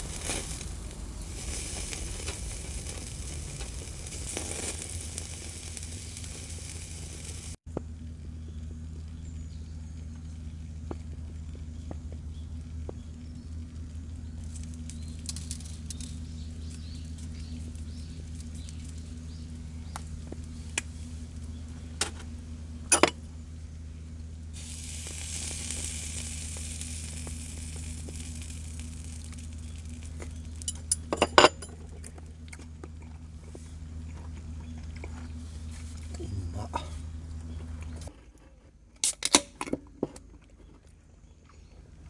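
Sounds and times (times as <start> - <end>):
food sizzling in a pan: 0.0 - 7.6, 24.6 - 31.1
steady low hum: 0.0 - 42.0.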